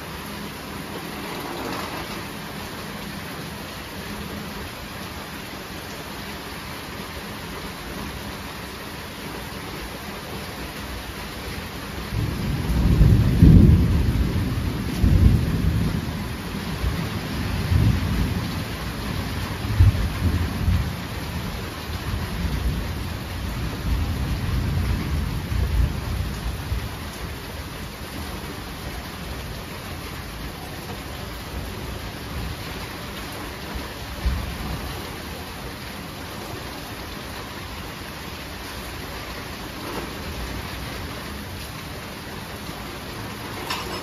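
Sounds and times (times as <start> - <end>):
heavy rain: 0.0 - 44.0
thunder rumbling: 12.1 - 27.4.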